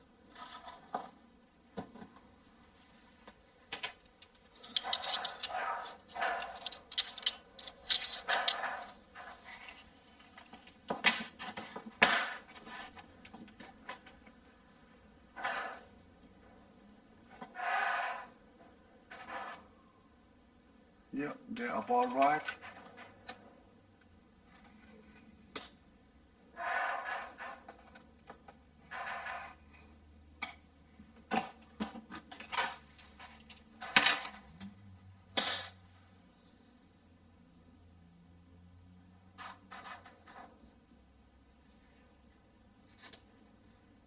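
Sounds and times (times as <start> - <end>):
pencil scratching on plasterboard: 17.4 - 18.4, 19.1 - 19.8, 26.6 - 28.0, 28.9 - 29.9.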